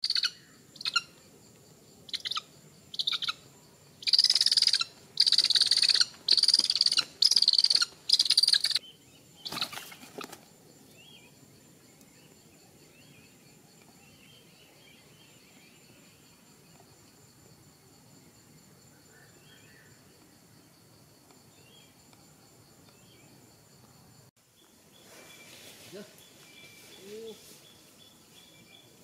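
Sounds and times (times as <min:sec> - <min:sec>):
raptor chick calling: 0:00.0 - 0:01.2, 0:02.1 - 0:03.4, 0:04.0 - 0:08.8
high insect drone: 0:00.0 - 0:29.0.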